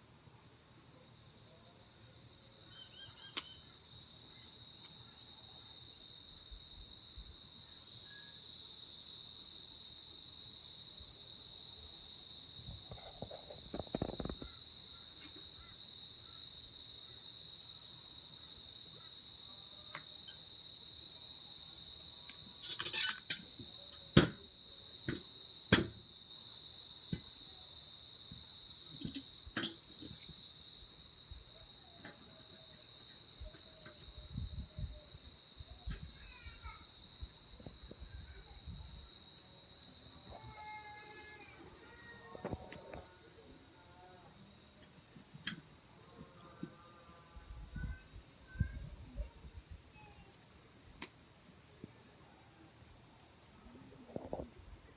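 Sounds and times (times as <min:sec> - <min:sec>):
insect chorus trilling: 0:02.3 - 0:51.1, 0:51.8 - 0:54.9.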